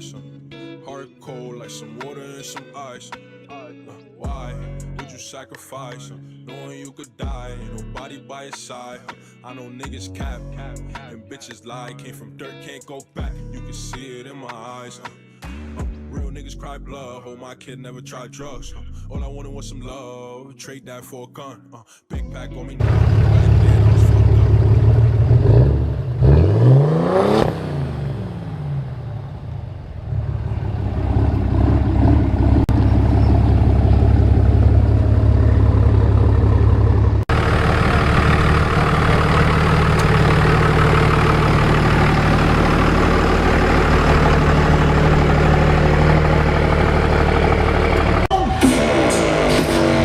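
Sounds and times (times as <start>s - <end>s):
diesel truck engine revving: 22.8s - 50.0s
loud engine running: 22.8s - 50.0s.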